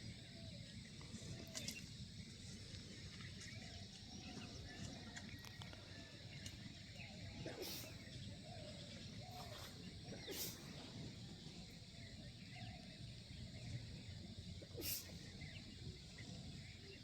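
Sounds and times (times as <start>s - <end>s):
brief hissing bursts: 10.2s - 10.7s, 14.8s - 15.2s.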